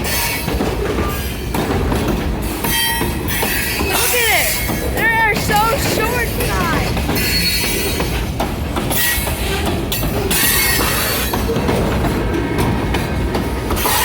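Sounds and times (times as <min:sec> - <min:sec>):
train wheels clacking over rail joints: 0:00.0 - 0:14.0
wheel squeal: 0:02.6 - 0:05.0, 0:07.2 - 0:08.2, 0:08.9 - 0:11.9.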